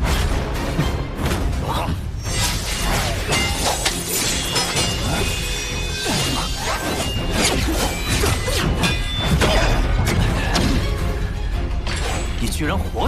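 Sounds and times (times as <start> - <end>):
dramatic background music: 0.0 - 13.0.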